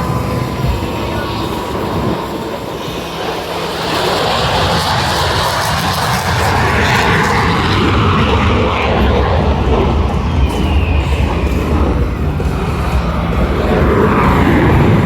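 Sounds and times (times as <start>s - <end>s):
jet aircraft flying past: 0.0s - 15.0s.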